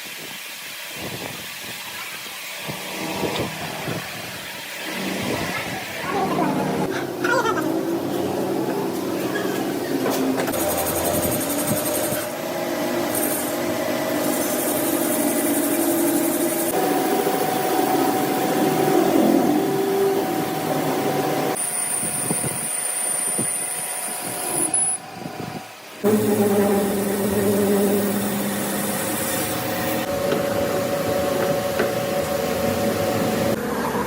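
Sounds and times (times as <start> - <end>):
workshop machine tools running: 0.1 - 34.0.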